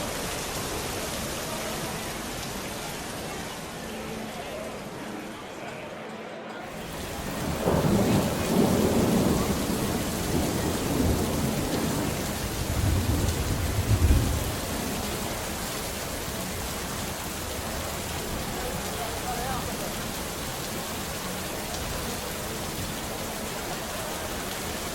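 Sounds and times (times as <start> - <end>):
heavy rain: 0.0 - 24.9
rolling thunder: 6.8 - 16.0.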